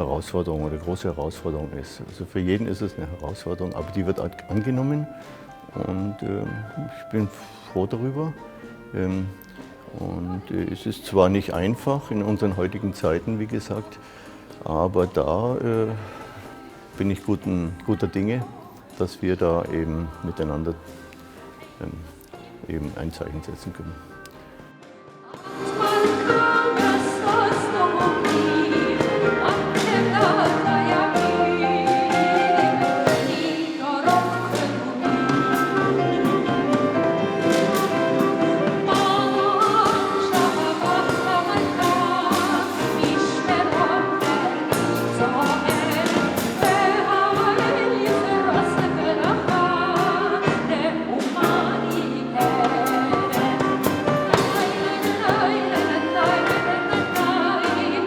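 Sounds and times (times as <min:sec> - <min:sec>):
klezmer ensemble playing: 0:00.1 - 0:58.0
percussion strikes: 0:24.7 - 0:58.0
person singing: 0:25.2 - 0:58.0.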